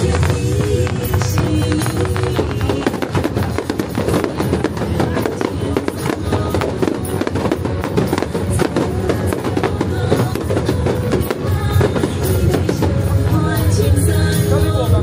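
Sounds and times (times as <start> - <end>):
fireworks crackling and popping: 0.0 - 15.0
loud music: 0.0 - 15.0.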